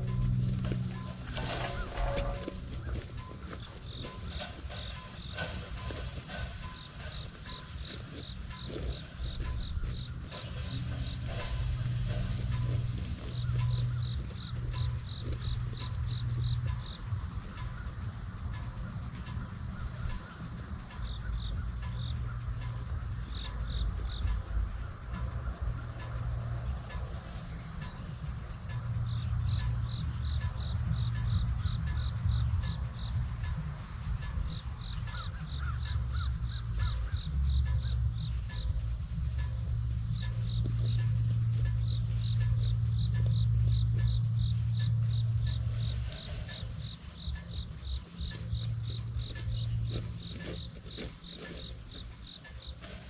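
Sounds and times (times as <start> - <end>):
low rumble: 0.0 - 4.8
high-pitched drone: 0.0 - 20.6
insects chirping: 0.0 - 53.0.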